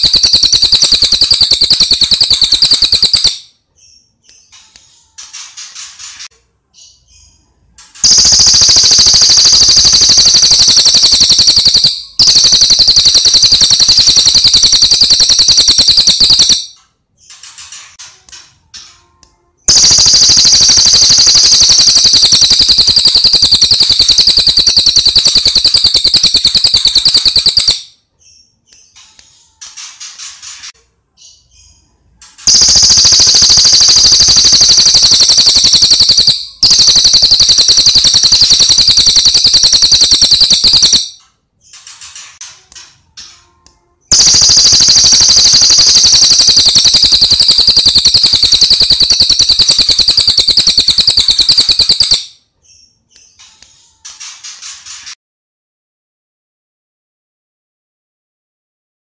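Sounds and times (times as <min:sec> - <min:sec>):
songbird rapid trill: 0:08.0 - 0:16.6, 0:19.7 - 0:27.8, 0:32.5 - 0:41.1, 0:44.1 - 0:52.2.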